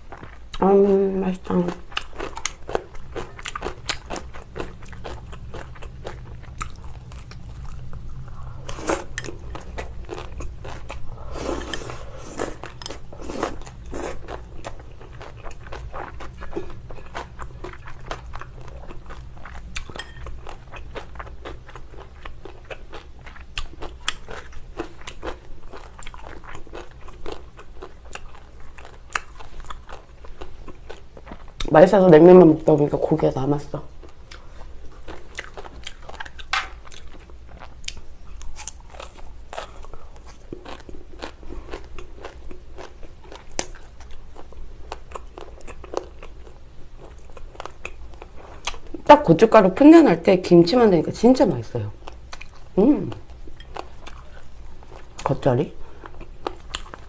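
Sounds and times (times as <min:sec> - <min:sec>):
chewing with crunches: 0:00.0 - 0:00.7, 0:01.4 - 0:31.7, 0:33.9 - 0:49.1, 0:52.0 - 0:57.0.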